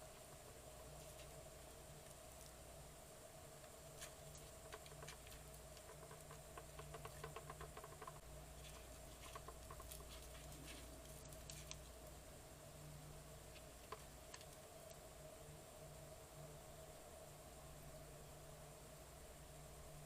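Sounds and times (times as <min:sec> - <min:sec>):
low steady hum: 0:00.0 - 0:20.0
faint clicks and tapping: 0:03.6 - 0:12.2, 0:13.5 - 0:15.0.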